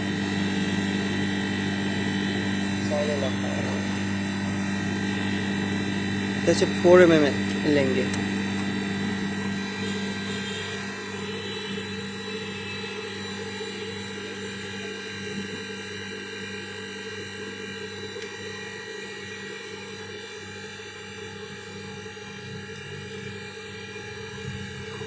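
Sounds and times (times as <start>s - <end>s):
air conditioner hum with high whine: 0.0s - 25.0s.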